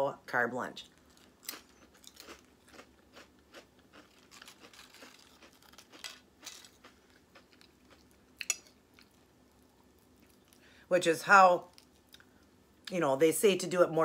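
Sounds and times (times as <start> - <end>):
chewing crunchy chips: 0.9 - 10.7.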